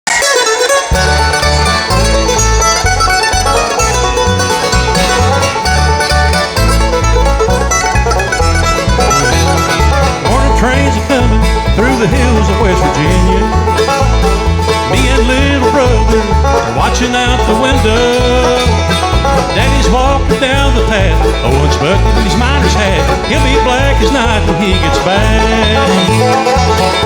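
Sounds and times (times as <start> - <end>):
banjo: 0.0 - 27.0
fiddle lead line: 0.0 - 27.0
guitar: 0.0 - 27.0
bass beat: 0.9 - 27.0.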